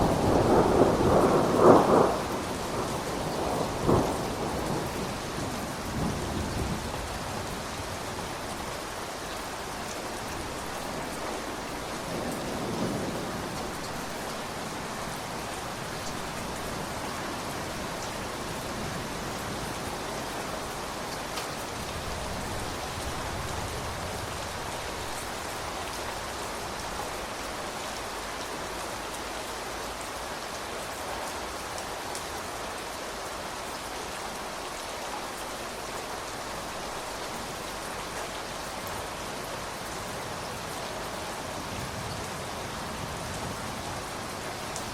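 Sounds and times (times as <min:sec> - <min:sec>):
low rumbles of thunder: 0:00.0 - 0:08.0, 0:11.0 - 0:19.7
steady rain falling: 0:00.0 - 0:44.9.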